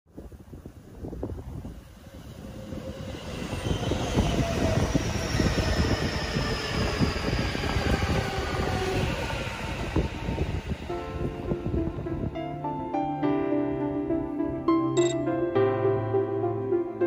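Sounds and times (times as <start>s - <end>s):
train wheels rumbling on rails: 1.0s - 12.4s.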